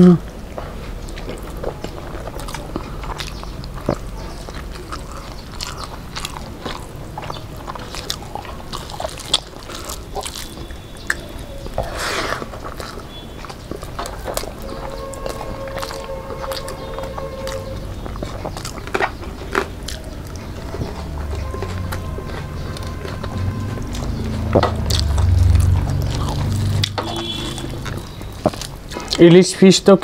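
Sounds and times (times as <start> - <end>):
chewing and lip smacks: 0.2 - 29.4.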